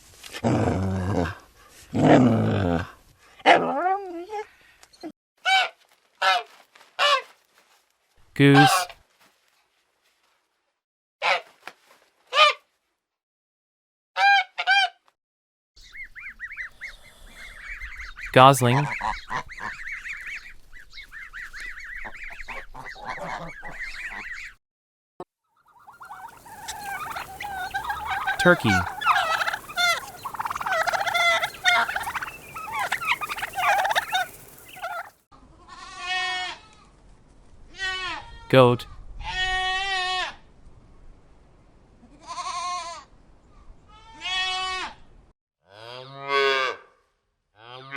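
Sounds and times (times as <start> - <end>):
turkey gobbling: 8.6 - 8.9, 17.6 - 24.5, 25.6 - 35.2
high-pitched peeping: 25.7 - 35.1
goose honking: 25.7 - 35.2
background hiss: 26.1 - 35.2
goat bleating: 35.6 - 36.7.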